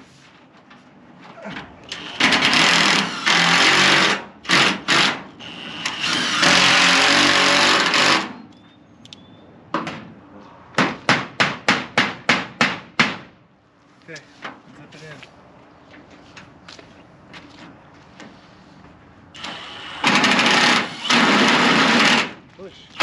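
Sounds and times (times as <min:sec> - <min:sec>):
power driver driving screws: 0:01.9 - 0:08.3, 0:19.4 - 0:22.3.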